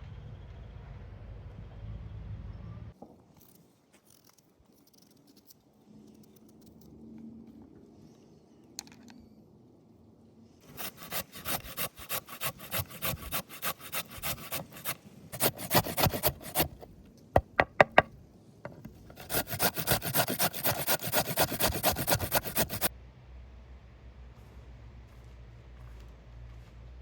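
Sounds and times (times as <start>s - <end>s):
rasping strokes against wood: 10.6s - 18.1s, 18.7s - 22.9s.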